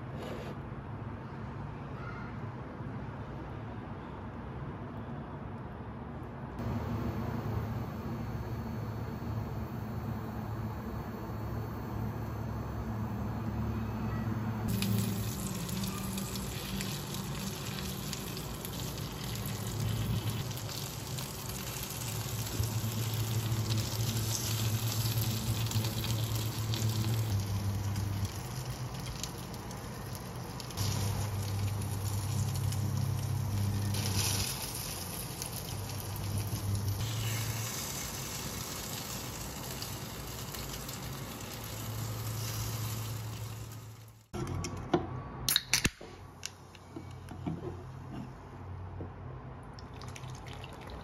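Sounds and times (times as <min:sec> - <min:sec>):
low steady hum: 0:06.5 - 0:45.5
food sizzling in oil: 0:14.7 - 0:44.3.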